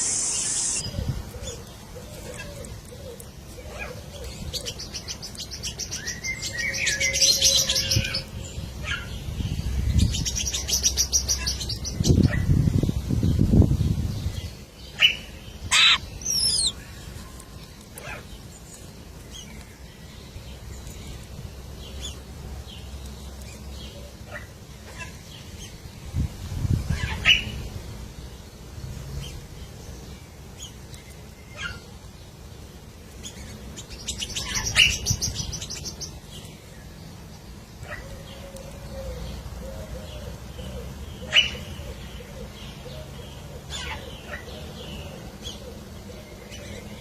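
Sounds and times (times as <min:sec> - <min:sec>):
bird chirps and whistles: 0:00.0 - 0:00.9, 0:15.7 - 0:16.8.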